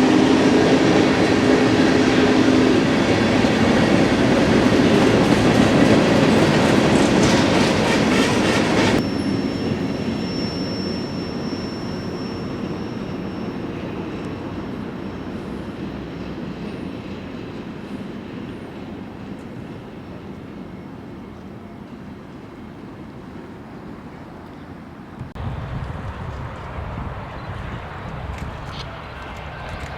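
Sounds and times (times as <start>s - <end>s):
train rumble: 0.0s - 29.9s
train wheels clattering: 1.1s - 9.0s
high wheel squeal: 6.5s - 17.2s.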